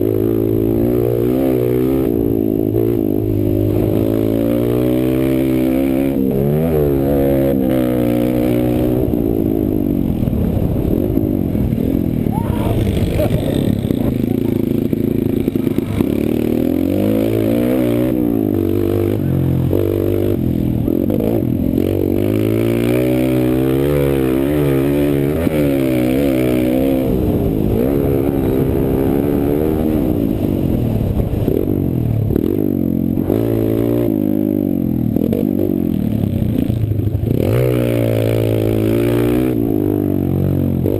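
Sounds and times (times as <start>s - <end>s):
pit bike engine revving: 0.0s - 40.9s.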